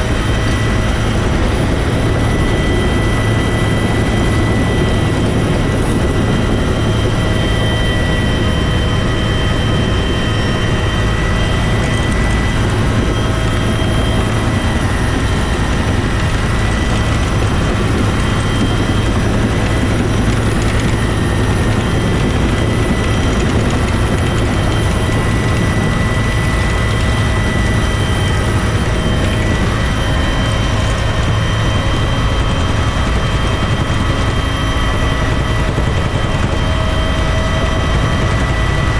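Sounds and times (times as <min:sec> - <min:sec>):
helicopter engine and rotor drone: 0:00.0 - 0:38.9
high turbine whine: 0:00.0 - 0:38.9.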